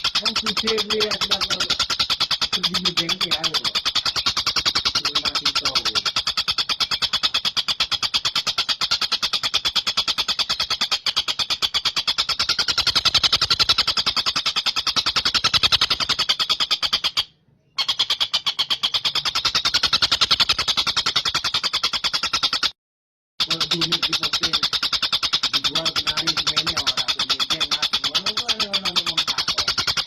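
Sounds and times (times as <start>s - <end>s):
kingfisher calling fast high notes: 0.0s - 9.2s, 23.4s - 30.0s.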